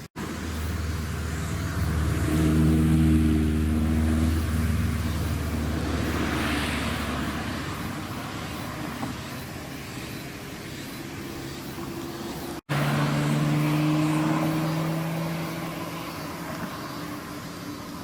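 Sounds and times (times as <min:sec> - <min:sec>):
car engine driving off: 0:00.2 - 0:09.2, 0:12.7 - 0:18.0.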